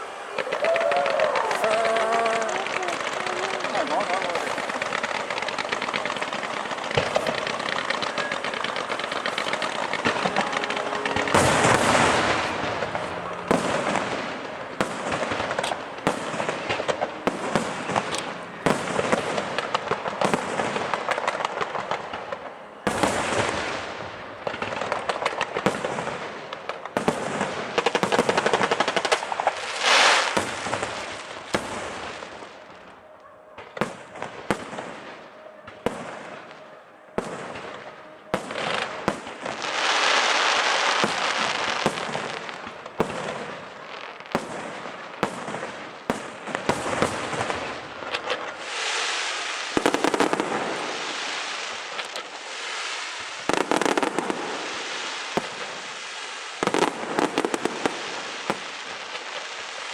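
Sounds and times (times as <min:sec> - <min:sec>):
fireworks crackling: 0:00.0 - 0:59.9
firework shell bursts: 0:00.4 - 0:22.3.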